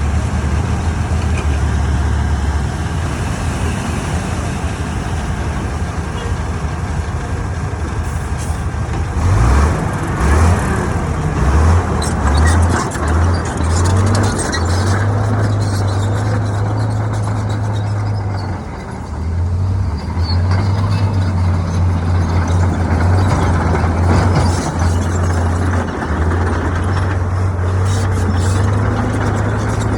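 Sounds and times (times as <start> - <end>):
diesel engine humming: 0.0 - 29.9.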